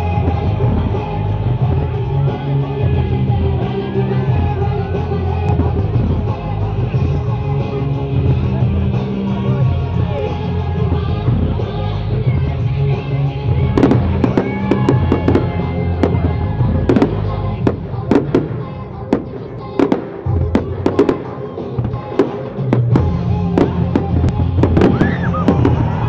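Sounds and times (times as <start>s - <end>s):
music with steady bass line: 0.0s - 26.0s
fireworks bangs and crackles: 13.5s - 26.0s.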